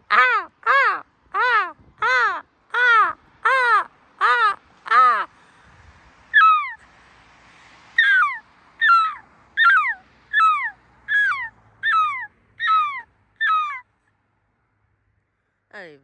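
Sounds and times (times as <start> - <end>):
seagull calling: 0.1 - 5.3, 6.4 - 6.8, 8.0 - 13.8.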